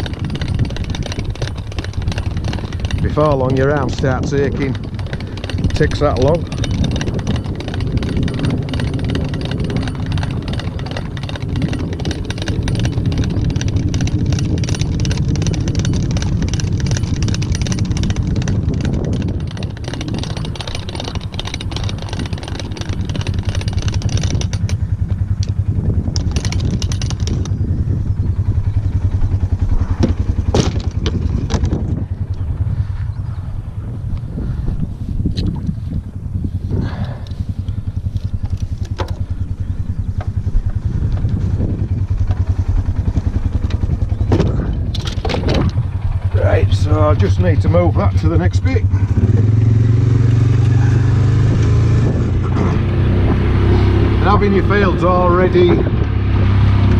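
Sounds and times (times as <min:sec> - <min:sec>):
sharp metallic clanks: 0:00.0 - 0:27.6
farm vehicle engine running: 0:00.0 - 0:56.9.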